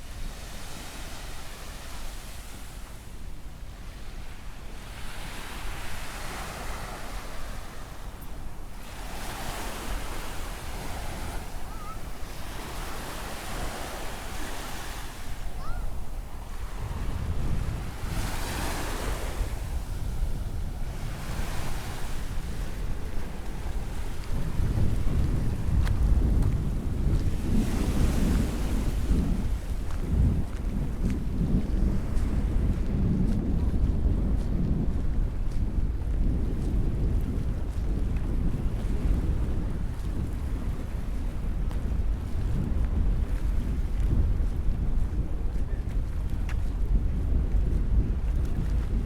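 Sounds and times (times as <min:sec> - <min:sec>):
ocean waves breaking: 0:00.0 - 0:30.6
wind buffeting microphone: 0:00.0 - 0:49.0.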